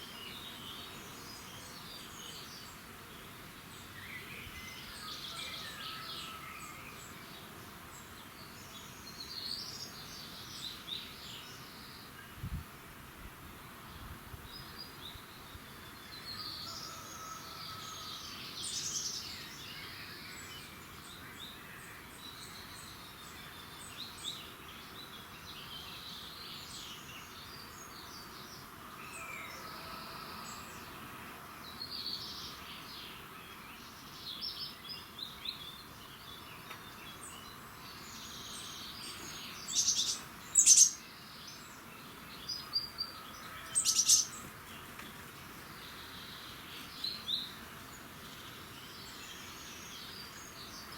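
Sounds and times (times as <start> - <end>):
faint steady hiss: 0.0 - 50.9
songbirds chirping and trilling: 0.0 - 50.9
sharp bird calls: 38.8 - 41.1, 42.6 - 44.5.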